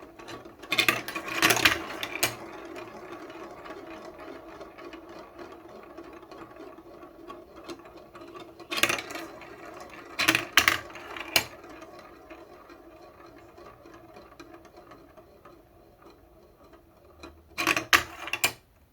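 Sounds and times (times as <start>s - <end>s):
balls clacking against track: 0.0s - 18.6s
balls rattling down marble run: 0.0s - 18.6s.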